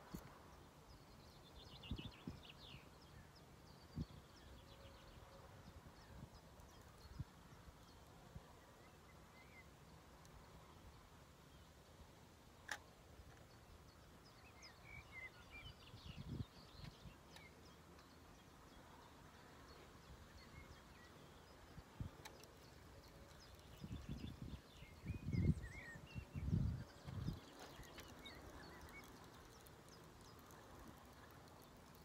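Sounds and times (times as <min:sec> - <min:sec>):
faint bird chirps: 0:12.7 - 0:32.0.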